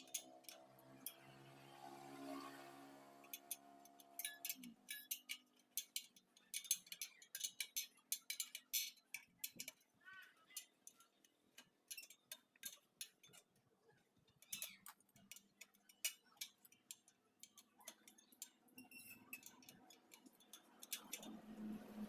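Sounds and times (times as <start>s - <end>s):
metallic ticks on wheel spokes: 0.0s - 22.0s.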